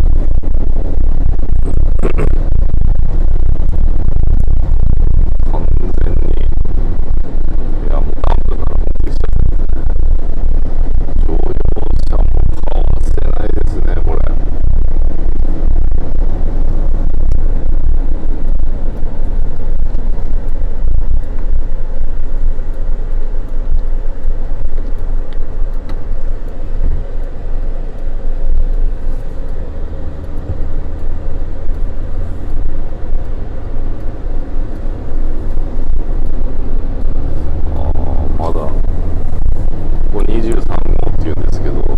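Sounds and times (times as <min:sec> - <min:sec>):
vehicle engine and road rumble: 0:00.0 - 0:41.9.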